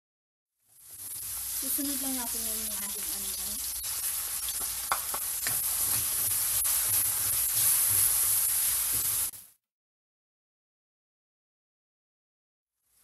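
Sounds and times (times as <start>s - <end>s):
spatula stirring in a wok: 0.6s - 9.5s
onion sizzling in hot oil: 0.6s - 9.6s, 12.8s - 13.0s.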